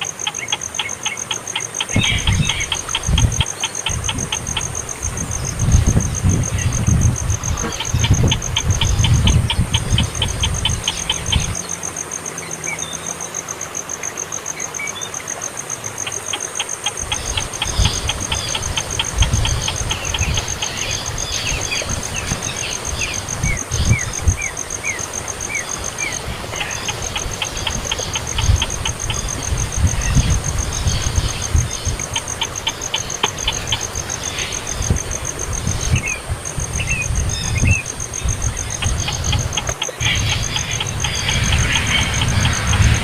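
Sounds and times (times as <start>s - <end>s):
insect trill: 0.0s - 43.0s
low rumbling noise: 34.8s - 43.0s.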